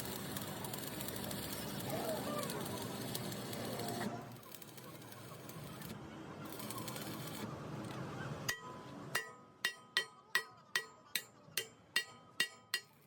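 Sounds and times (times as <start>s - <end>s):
hammer striking steel: 8.5s - 13.0s.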